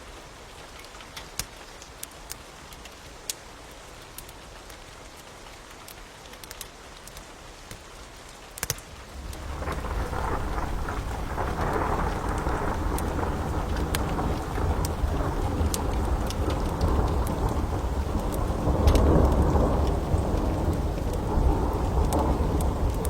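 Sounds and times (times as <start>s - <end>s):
steady rain: 0.0s - 23.0s
wood fire crackling: 0.7s - 23.0s
thunder rumbling: 9.0s - 23.0s.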